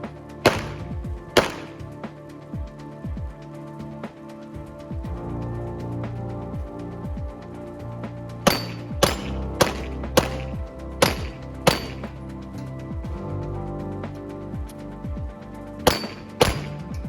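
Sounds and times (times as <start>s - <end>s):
background music: 0.0s - 17.0s
pistol shots: 0.5s - 1.8s, 8.5s - 12.0s, 15.9s - 16.8s.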